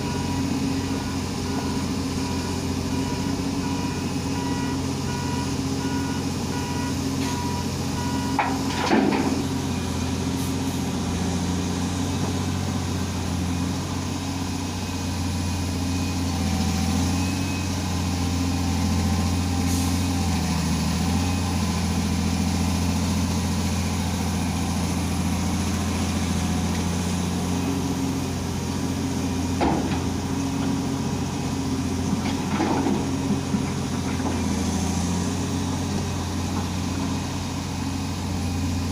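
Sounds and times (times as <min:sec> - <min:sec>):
short beeping tones: 0:00.0 - 0:08.4
excavator diesel engine running: 0:00.0 - 0:38.9.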